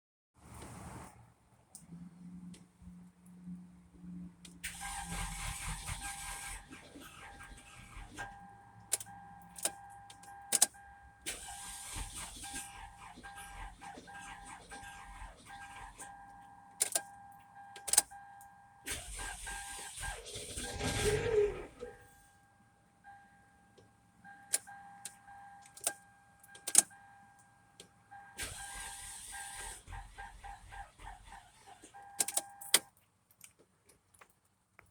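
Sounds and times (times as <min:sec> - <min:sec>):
car engine high-pitched whine: 0:02.0 - 0:17.2, 0:18.8 - 0:27.8, 0:28.4 - 0:32.4
engine alternator whine: 0:18.5 - 0:32.3.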